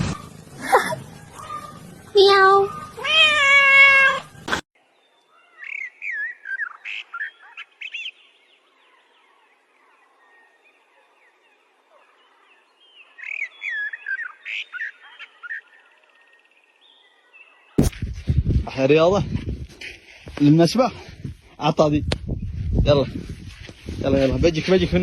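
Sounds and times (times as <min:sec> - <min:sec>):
bird chirping: 0:04.3 - 0:17.8.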